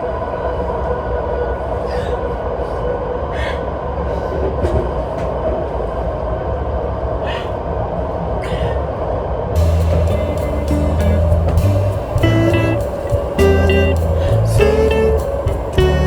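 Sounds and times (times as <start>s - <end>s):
moving vehicle rumble: 9.6s - 16.0s.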